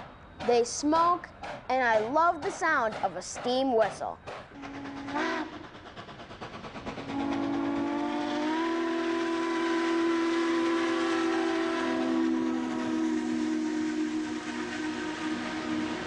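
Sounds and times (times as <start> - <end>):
steam locomotive running: 0.0 - 16.0
steam whistle blast: 4.6 - 5.7, 7.0 - 16.0.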